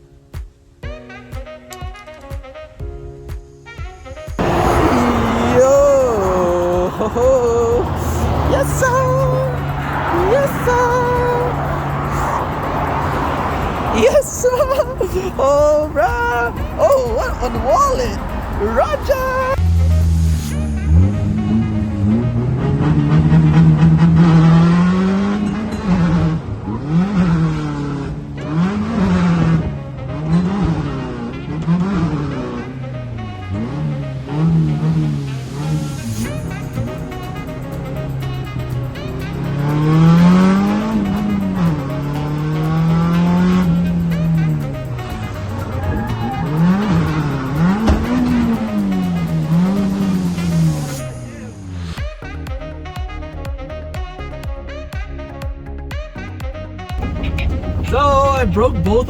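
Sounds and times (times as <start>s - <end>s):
music: 0.0s - 59.0s
tyres squealing: 4.4s - 19.6s, 43.2s - 50.5s
car engine at high revs: 4.4s - 52.0s, 57.0s - 59.0s
tire noise: 4.4s - 59.0s.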